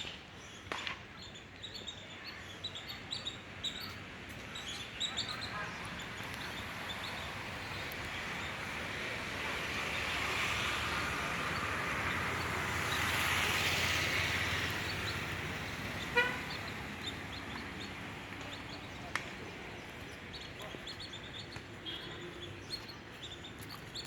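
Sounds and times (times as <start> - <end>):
vehicle passing by: 5.2 - 21.5
vehicle horn honk: 16.0 - 16.8.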